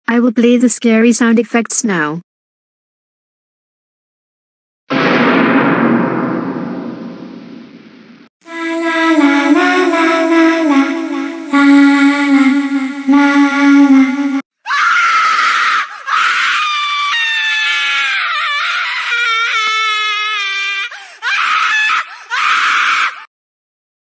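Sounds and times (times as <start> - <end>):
droning horn-like tone: 8.5 - 14.4
high-pitched screams and shrieks: 14.7 - 23.3.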